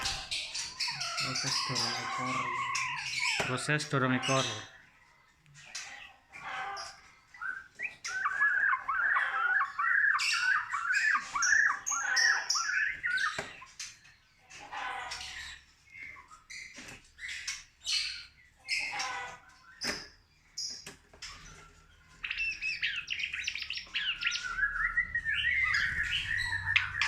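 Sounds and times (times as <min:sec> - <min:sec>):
bird giving harsh repeated calls: 0:00.0 - 0:04.7, 0:08.1 - 0:13.4.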